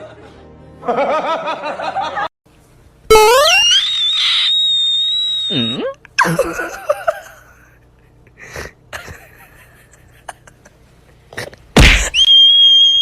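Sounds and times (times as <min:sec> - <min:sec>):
steady high tone: 0:03.1 - 0:05.9
person sneezing: 0:11.4 - 0:12.2.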